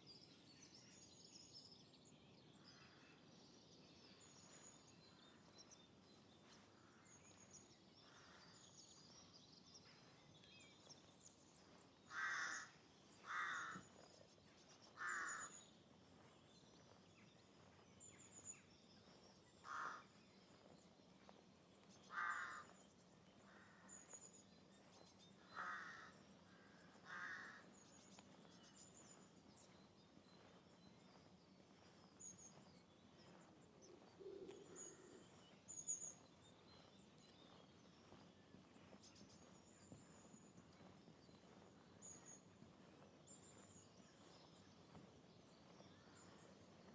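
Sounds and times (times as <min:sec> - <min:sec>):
small birds chirping: 0:00.0 - 0:46.9
crow cawing: 0:12.1 - 0:13.8, 0:15.0 - 0:15.5, 0:19.6 - 0:20.0, 0:22.1 - 0:22.7, 0:25.6 - 0:26.1, 0:27.0 - 0:27.6.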